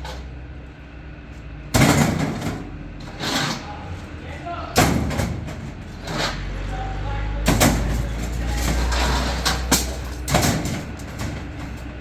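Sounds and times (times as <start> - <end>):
vehicle engine rumbling: 0.0 - 12.0
background voices: 6.2 - 12.0.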